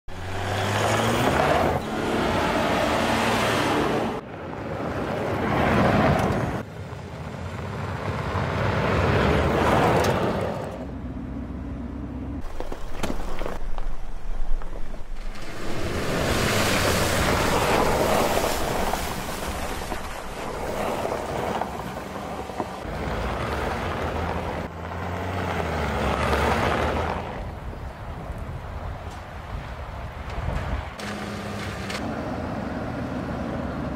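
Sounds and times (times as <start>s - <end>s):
tyres on gravel: 12.4s - 24.7s, 30.2s - 32.1s.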